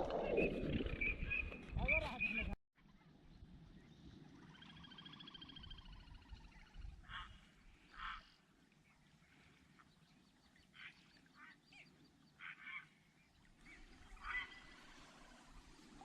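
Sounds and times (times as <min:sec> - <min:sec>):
faint duck quacking: 0:06.8 - 0:09.6, 0:12.4 - 0:13.1, 0:13.7 - 0:15.2.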